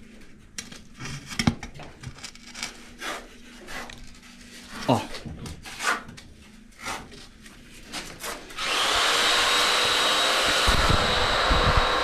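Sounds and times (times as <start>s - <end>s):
power tool motor whining: 8.6s - 12.0s.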